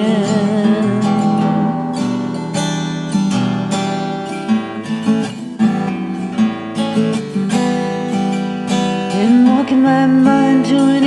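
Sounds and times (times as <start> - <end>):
acoustic guitar playing: 0.0 - 11.0.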